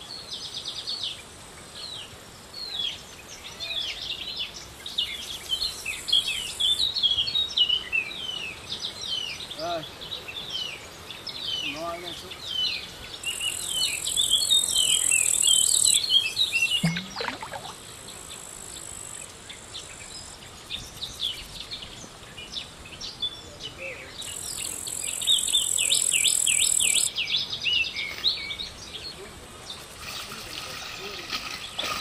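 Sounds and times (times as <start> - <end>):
insects droning: 0.3 - 32.0
birds chirping: 11.0 - 18.2.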